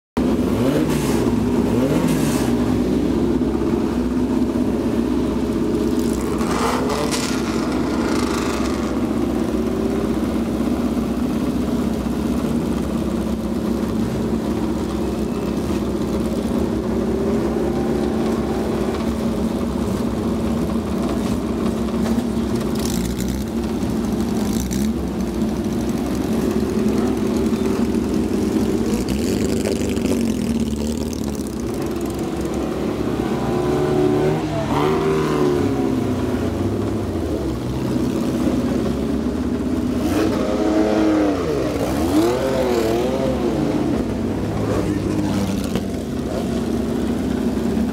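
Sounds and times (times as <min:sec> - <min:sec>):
sports car engines idling: 0:00.2 - 0:47.9
engine revving: 0:00.4 - 0:03.1, 0:05.8 - 0:10.1, 0:22.0 - 0:39.1, 0:39.8 - 0:47.9.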